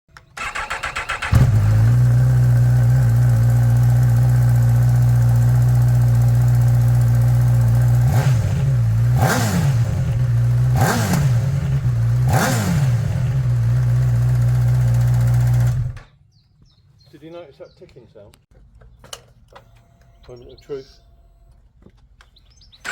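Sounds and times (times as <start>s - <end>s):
motorcycle engine idling and revving: 0.4s - 16.1s.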